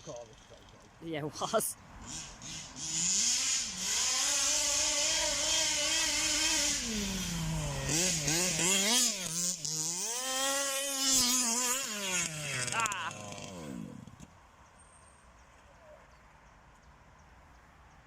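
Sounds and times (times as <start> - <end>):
rc car engine revving: 2.0 - 14.3.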